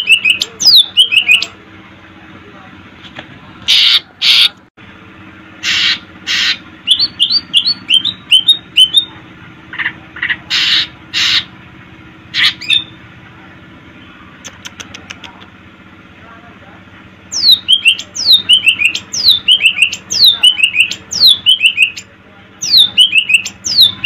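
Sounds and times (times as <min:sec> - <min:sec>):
bird harsh rasping calls: 0:00.0 - 0:01.5, 0:03.7 - 0:04.6, 0:05.6 - 0:09.1, 0:09.7 - 0:11.6, 0:12.3 - 0:13.0, 0:17.3 - 0:24.0
bird rising chirps: 0:17.3 - 0:24.0.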